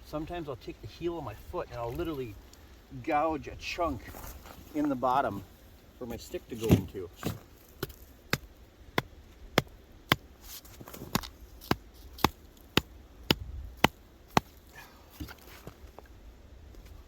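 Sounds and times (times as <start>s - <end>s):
sharp knocks gouging a hole: 6.6s - 15.4s.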